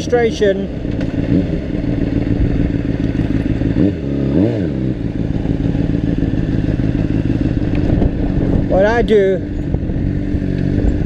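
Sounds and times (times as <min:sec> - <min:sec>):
motorcycle engine idling: 0:00.0 - 0:11.0
wind rumble on microphone: 0:05.0 - 0:11.0.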